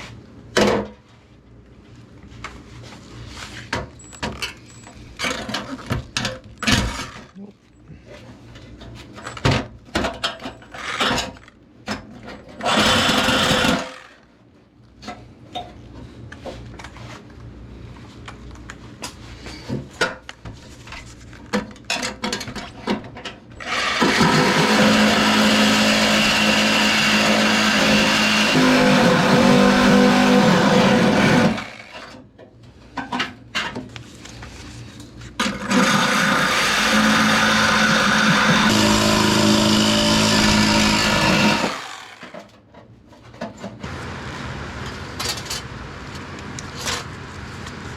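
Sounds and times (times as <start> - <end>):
power tool cutting sheet metal: 12.6 - 14.2, 23.6 - 32.2, 35.4 - 42.5.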